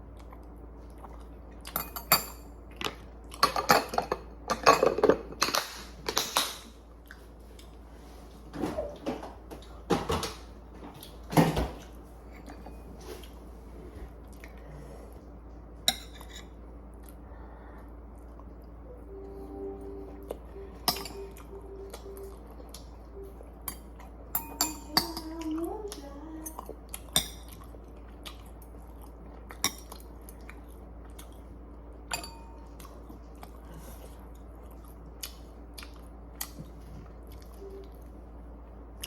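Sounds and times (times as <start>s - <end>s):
steady low hum: 0.0s - 39.0s
chewing: 0.1s - 1.8s, 25.9s - 31.5s, 32.7s - 38.1s
utensils clinking on dishes: 1.7s - 6.7s, 20.8s - 21.4s, 23.7s - 25.6s, 32.1s - 32.8s
short wavering pitched sound: 18.9s - 23.5s.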